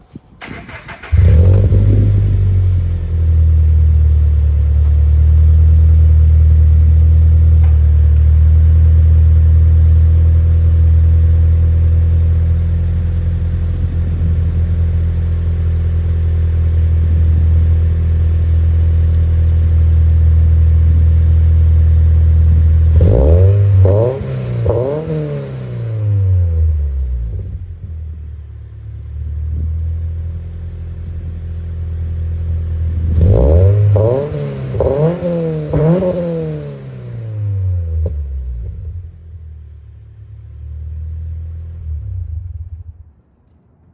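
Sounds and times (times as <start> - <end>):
car engine starting and idling: 0.0 - 43.3
engine revving blips: 22.9 - 27.6, 33.0 - 39.0.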